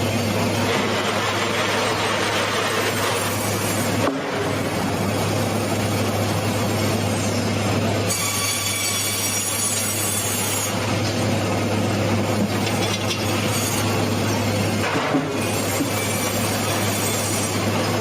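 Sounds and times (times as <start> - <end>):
saw cutting through log: 0.6 - 4.4, 8.1 - 10.9, 13.3 - 14.4, 15.3 - 18.0.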